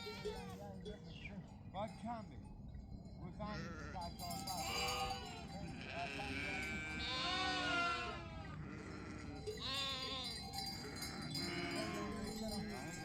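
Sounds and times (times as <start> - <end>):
sheep bleating: 0.0 - 0.6, 3.5 - 13.0.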